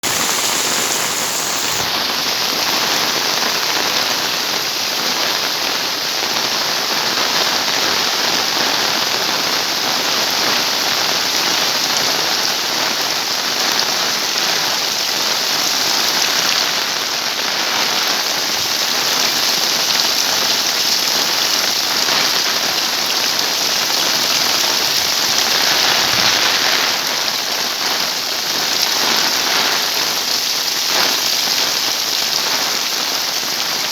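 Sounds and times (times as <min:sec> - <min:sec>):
heavy rain pouring: 0:00.0 - 0:02.7.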